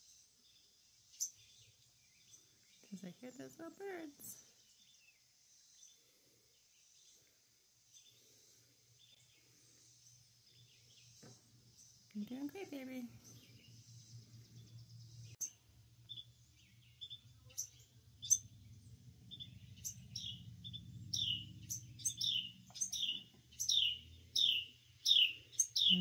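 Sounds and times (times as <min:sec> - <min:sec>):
songbird chirping sharply: 0:09.0 - 0:26.0.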